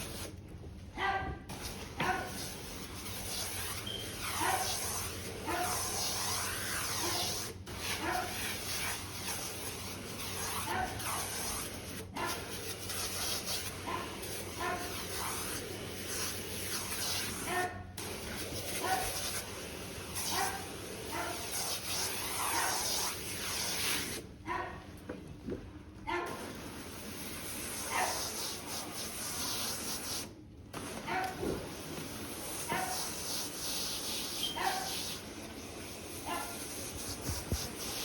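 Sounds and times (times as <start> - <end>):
dog barking and whining: 27.8 - 28.4, 34.4 - 35.0, 36.2 - 36.6.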